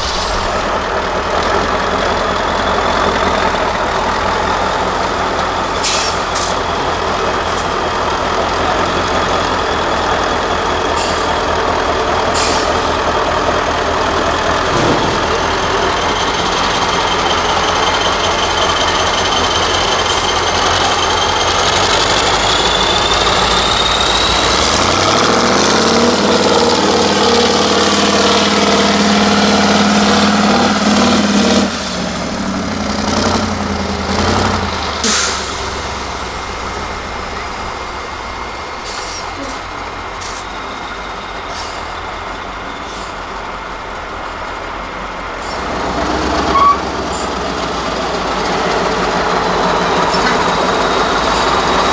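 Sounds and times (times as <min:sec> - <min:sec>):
high whine: 0:00.0 - 0:02.7
truck diesel engine under load: 0:00.0 - 0:51.9.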